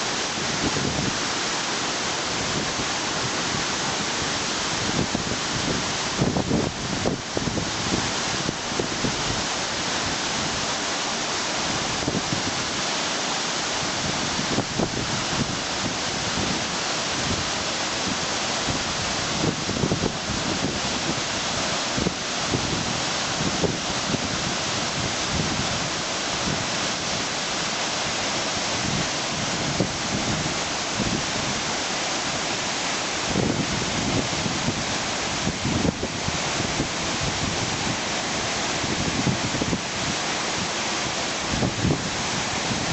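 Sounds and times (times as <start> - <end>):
waterfall roaring: 0.0 - 42.9
wind buffeting microphone: 33.2 - 38.0, 38.7 - 40.7, 41.4 - 42.9.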